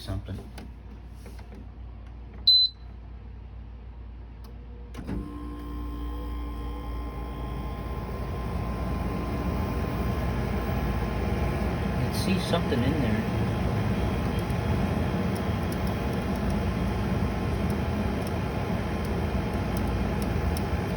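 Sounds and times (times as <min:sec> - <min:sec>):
dehumidifier beep: 0:02.5 - 0:02.9, 0:06.8 - 0:20.9
dehumidifier humming: 0:05.0 - 0:20.9
dehumidifier click: 0:09.3 - 0:20.9.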